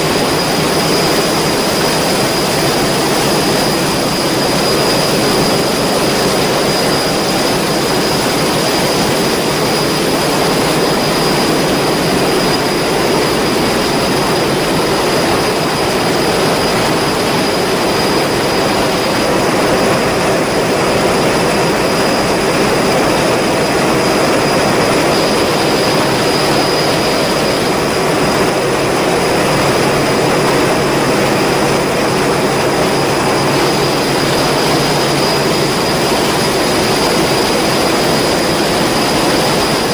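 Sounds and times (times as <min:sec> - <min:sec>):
high mechanical whine: 0:00.0 - 0:39.9.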